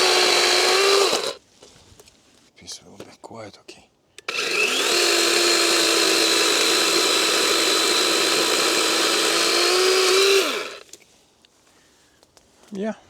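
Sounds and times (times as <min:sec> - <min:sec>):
chainsaw cutting through log: 0:00.0 - 0:01.4, 0:04.3 - 0:10.8.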